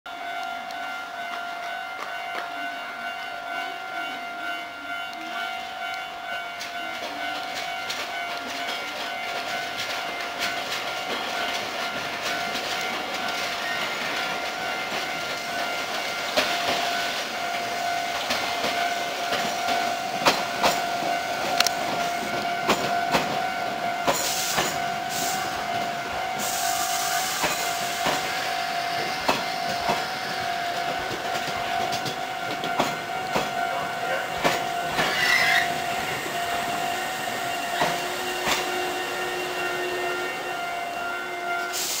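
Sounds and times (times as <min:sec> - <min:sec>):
steady high ring: 0:00.1 - 0:42.0
train wheels clacking over rail joints: 0:06.6 - 0:38.9
air hiss: 0:26.4 - 0:28.2, 0:41.7 - 0:42.0.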